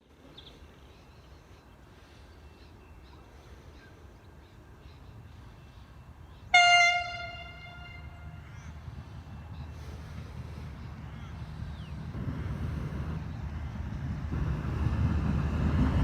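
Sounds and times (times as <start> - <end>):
train horn blast: 6.5 - 8.8.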